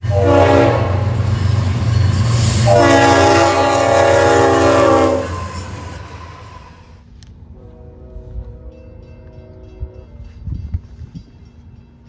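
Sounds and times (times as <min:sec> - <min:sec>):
locomotive air horn: 0:00.0 - 0:01.2, 0:02.4 - 0:06.9, 0:07.6 - 0:08.8
low train rumble: 0:00.0 - 0:12.0.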